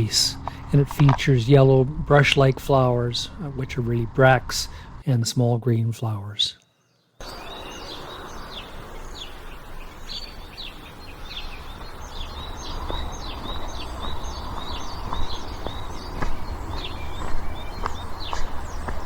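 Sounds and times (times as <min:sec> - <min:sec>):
low steady rumble: 0:00.0 - 0:05.1
small birds chirping: 0:06.5 - 0:19.0.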